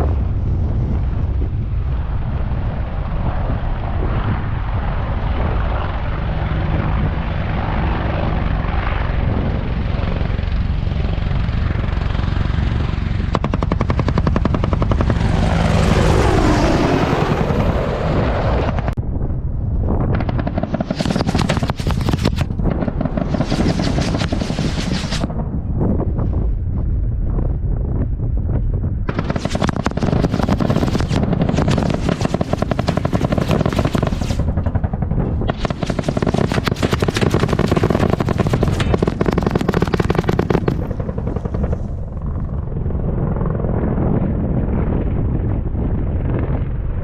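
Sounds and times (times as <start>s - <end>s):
helicopter rotor beating: 2.8s - 19.0s, 20.1s - 25.4s, 29.1s - 45.2s
rapid sharp cracks: 13.3s - 15.5s, 20.2s - 25.3s, 29.1s - 34.5s, 35.5s - 41.6s.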